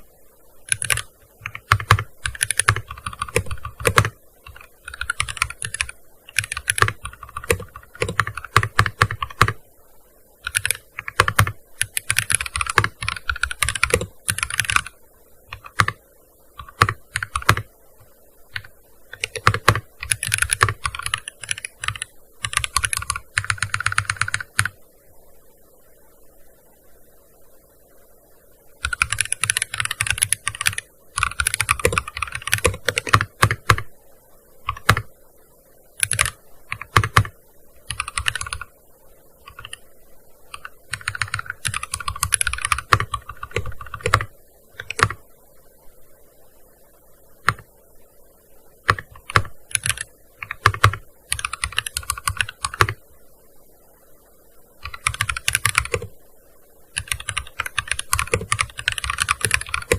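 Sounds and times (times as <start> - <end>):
keyboard typing: 0.6 - 9.6, 10.4 - 16.0, 16.6 - 24.8, 28.8 - 33.9, 34.7 - 35.1, 36.0 - 38.7, 39.4 - 39.8, 40.5 - 45.2, 47.4 - 47.7, 48.8 - 53.0, 54.8 - 56.1, 57.0 - 59.9.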